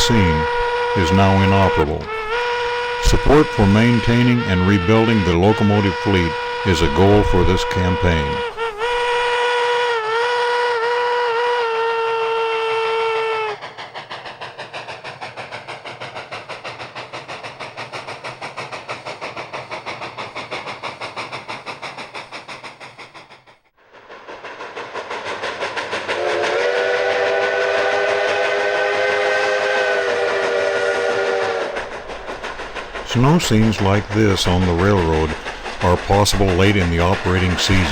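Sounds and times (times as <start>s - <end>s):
steam locomotive whistle: 0.0s - 13.6s, 26.1s - 32.0s
steam locomotive exhaust chuffs: 0.0s - 37.9s.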